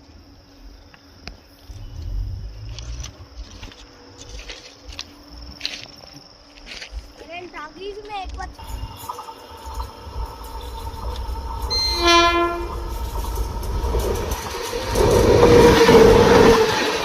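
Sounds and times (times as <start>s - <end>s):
train rumble: 6.5s - 17.0s
train wheels rattling: 7.4s - 17.0s
train horn: 8.6s - 13.6s.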